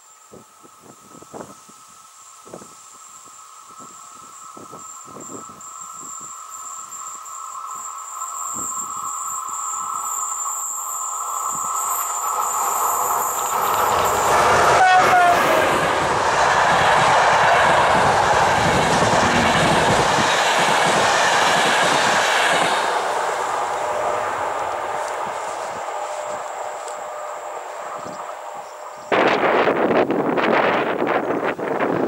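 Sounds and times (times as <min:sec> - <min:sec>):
train passing at speed: 0:00.0 - 0:32.0
train coaches rumbling and clattering: 0:02.4 - 0:32.0
train horn: 0:13.6 - 0:16.0, 0:23.9 - 0:29.8.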